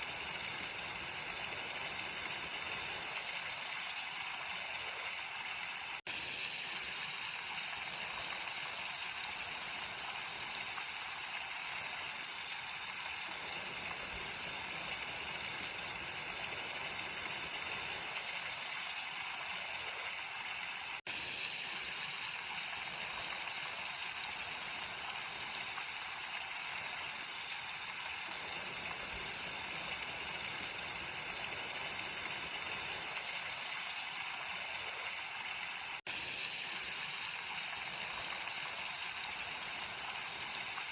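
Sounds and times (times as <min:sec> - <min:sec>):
stream water rushing: 0:21.8 - 0:40.9.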